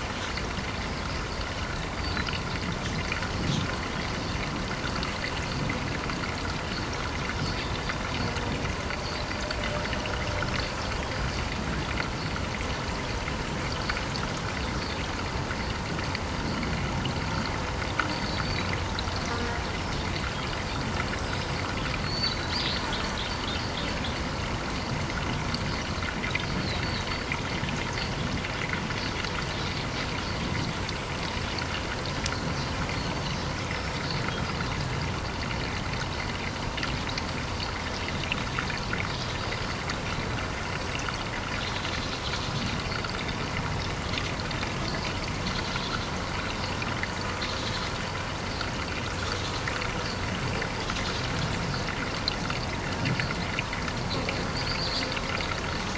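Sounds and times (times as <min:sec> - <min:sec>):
pond water trickling: 0:00.0 - 0:55.9
water splashes and drips: 0:00.0 - 0:55.9.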